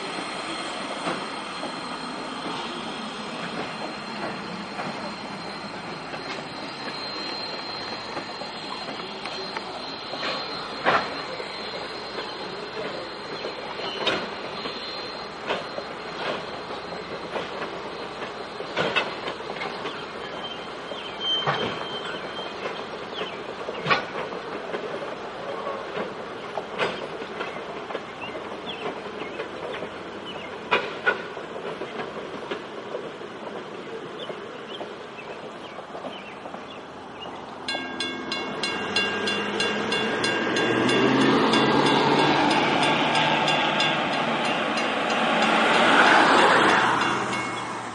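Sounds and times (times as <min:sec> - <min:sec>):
high ringing tone: 0:00.0 - 0:22.6, 0:37.6 - 0:47.9
train wheels clicking over rail joints: 0:00.0 - 0:47.9
wheel squeal: 0:00.0 - 0:47.9.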